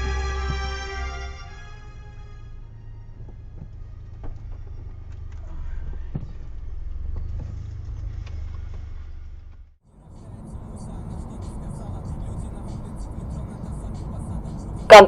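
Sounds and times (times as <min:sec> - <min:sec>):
car driving rumble: 0:00.0 - 0:15.0
faint knocks: 0:03.1 - 0:07.9.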